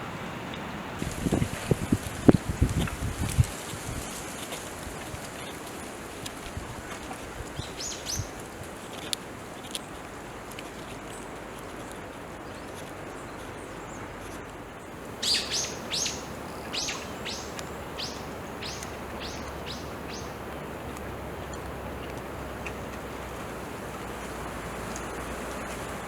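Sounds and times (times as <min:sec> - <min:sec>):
outdoor background hiss: 0:00.0 - 0:26.0
bird singing high notes: 0:15.2 - 0:20.4.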